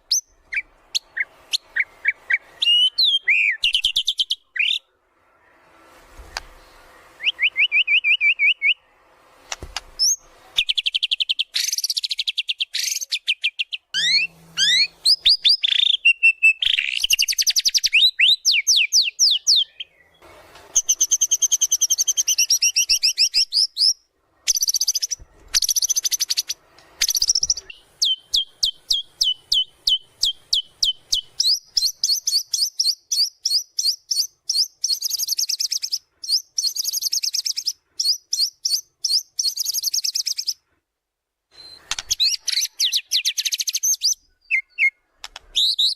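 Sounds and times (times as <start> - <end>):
bird singing trills and whistles: 0.0 - 4.9, 7.2 - 8.8, 10.0 - 20.2, 20.8 - 40.6, 41.5 - 45.9.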